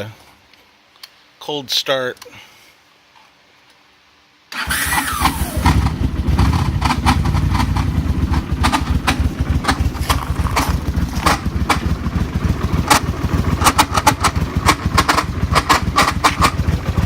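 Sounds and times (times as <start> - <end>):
scooter engine idling: 4.6 - 17.0
ticking rattle: 6.4 - 17.0.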